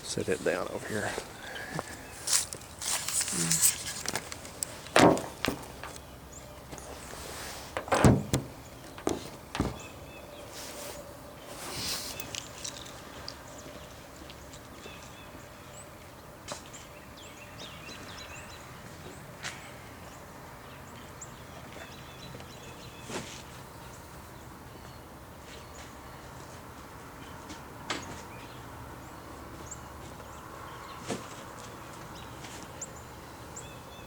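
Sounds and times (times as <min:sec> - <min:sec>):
objects knocking and clunking: 0:04.0 - 0:06.0, 0:07.8 - 0:09.8.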